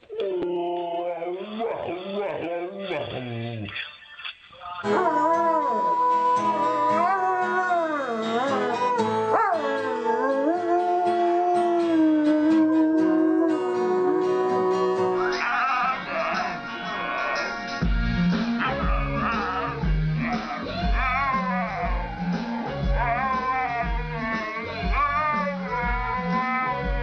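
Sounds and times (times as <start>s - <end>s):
music: 0.0s - 27.0s
dog howling: 0.1s - 3.4s, 4.8s - 16.6s, 18.6s - 27.0s.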